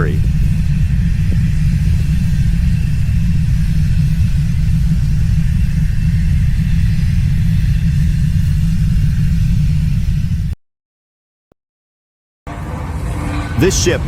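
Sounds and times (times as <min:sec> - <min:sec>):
volcano rumbling: 0:00.0 - 0:10.6.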